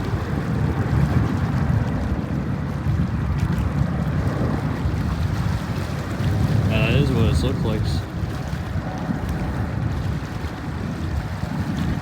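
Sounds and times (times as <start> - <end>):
jet engines rumbling: 6.3 - 8.1.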